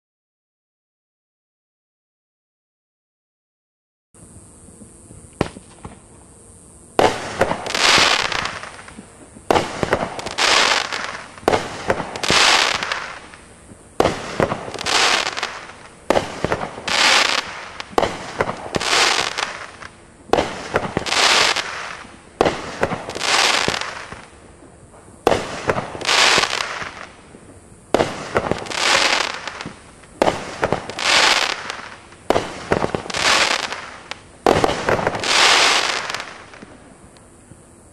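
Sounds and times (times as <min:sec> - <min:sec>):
firework shots with crackling bursts: 0:04.2 - 0:37.9.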